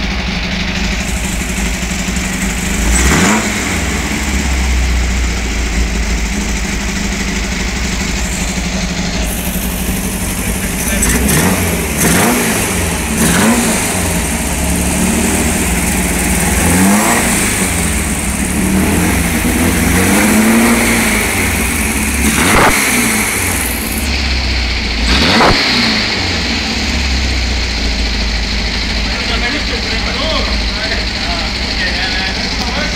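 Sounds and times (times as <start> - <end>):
engine revving: 0.8 - 32.9.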